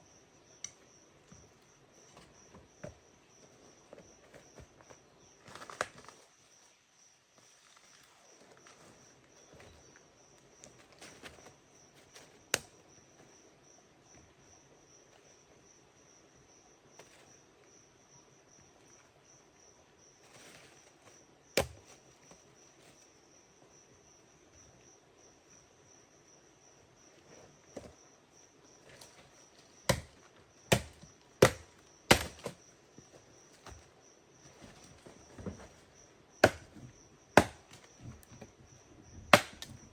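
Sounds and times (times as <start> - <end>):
sharp chopping strikes: 21.6 - 21.8, 29.9 - 32.6, 36.4 - 36.8, 37.4 - 37.8, 39.3 - 39.8.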